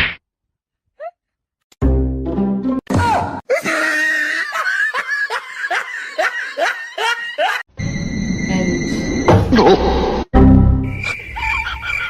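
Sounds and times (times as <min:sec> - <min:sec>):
person laughing: 0:03.5 - 0:07.7, 0:11.3 - 0:12.0.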